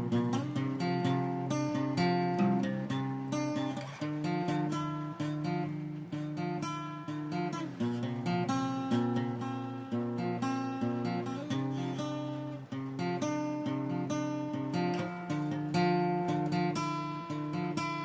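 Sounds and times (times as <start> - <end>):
strummed acoustic guitar chords: 0.0 - 18.0.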